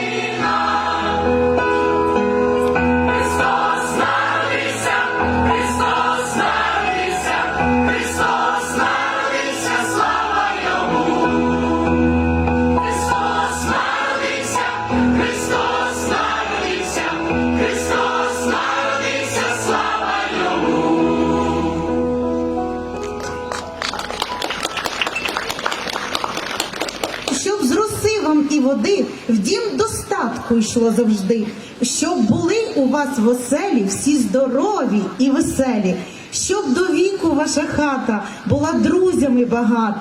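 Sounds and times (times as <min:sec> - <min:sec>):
choir singing a carol: 0:00.0 - 0:02.0, 0:02.7 - 0:22.6.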